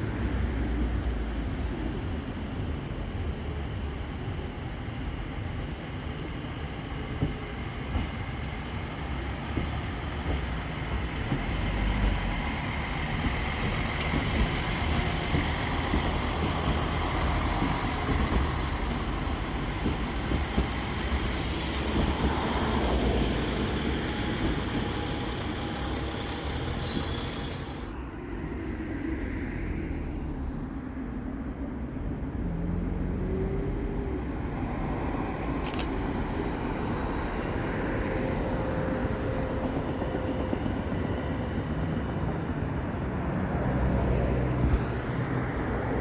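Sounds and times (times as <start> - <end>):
train rumbling past: 0.0 - 46.0
high wheel squeals: 22.8 - 27.9.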